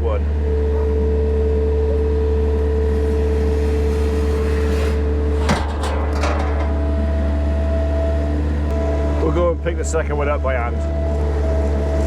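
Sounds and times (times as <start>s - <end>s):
engine humming: 0.3s - 12.0s
metallic clank: 3.9s - 9.3s.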